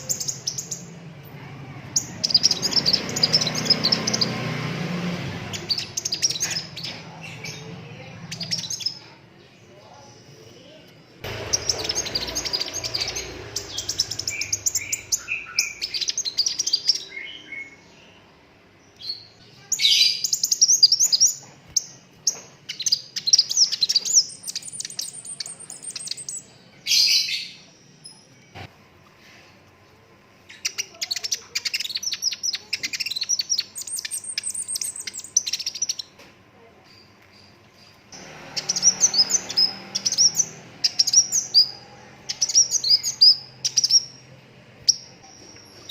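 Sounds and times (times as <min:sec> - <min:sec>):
bird twittering trills: 0:00.0 - 0:01.0, 0:01.9 - 0:04.7, 0:05.4 - 0:09.0, 0:11.2 - 0:18.3, 0:30.5 - 0:36.2, 0:36.9 - 0:45.9.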